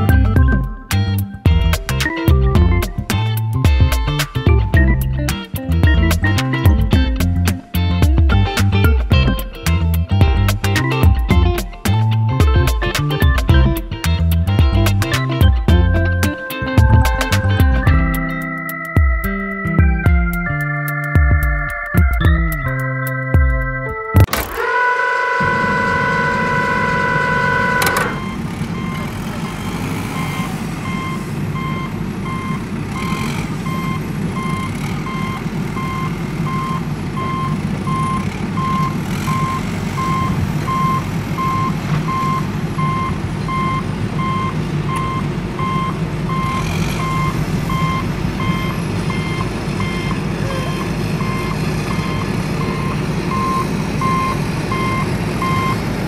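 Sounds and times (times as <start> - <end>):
engine rumbling: 0.0 - 56.0
truck reversing alarm beeping: 14.7 - 56.0.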